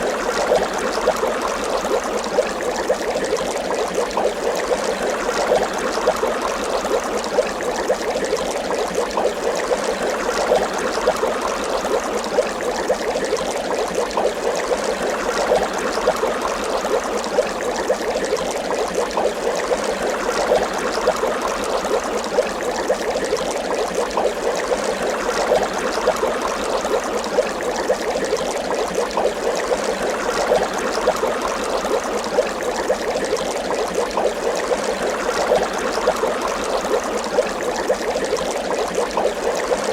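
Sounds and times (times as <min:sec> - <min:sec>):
water bubbling: 0:00.0 - 0:39.9.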